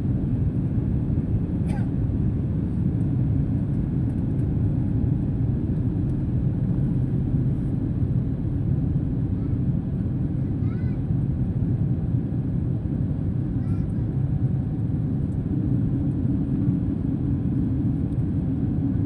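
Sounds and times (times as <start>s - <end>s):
airliner engines and airflow roar: 0.0s - 19.0s
faint voice: 10.6s - 11.0s.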